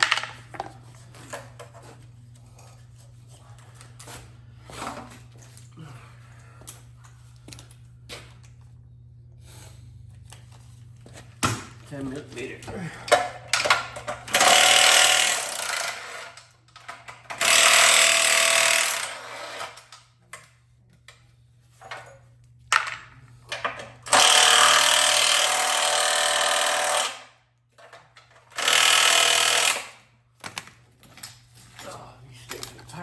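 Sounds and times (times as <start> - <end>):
power driver running: 11.6 - 16.4, 17.1 - 19.9, 23.6 - 27.3, 28.5 - 29.9.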